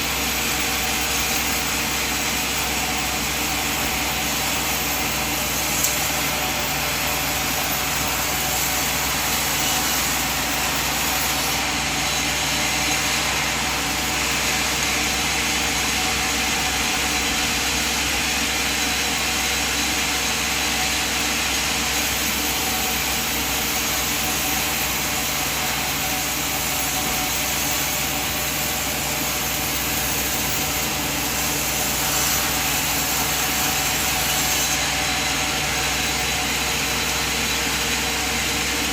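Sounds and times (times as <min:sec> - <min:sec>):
sawmill machine droning: 0:00.0 - 0:38.9.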